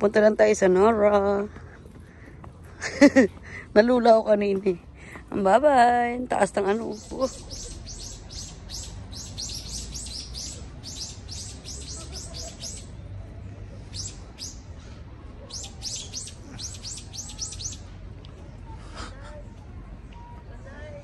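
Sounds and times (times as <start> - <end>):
small bird chirping: 6.9 - 13.0, 13.9 - 14.7, 15.5 - 17.9.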